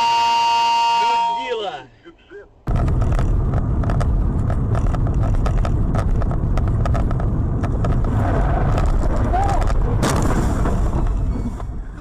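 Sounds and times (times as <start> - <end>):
vehicle road and wind noise: 2.1 - 12.0
sharp knocks and rattles: 2.7 - 11.8.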